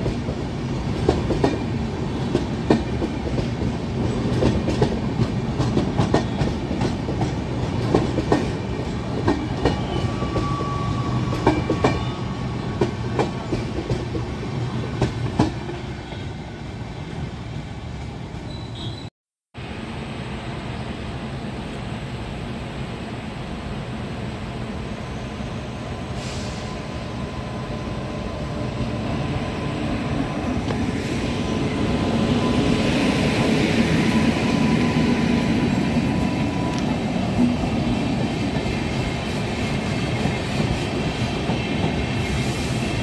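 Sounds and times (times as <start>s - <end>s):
train coaches rumbling past: 0.0s - 43.0s.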